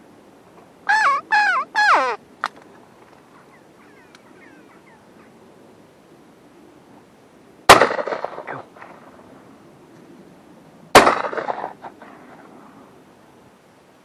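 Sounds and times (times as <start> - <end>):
shotgun shots with echo: 7.7 - 8.6, 11.0 - 11.8.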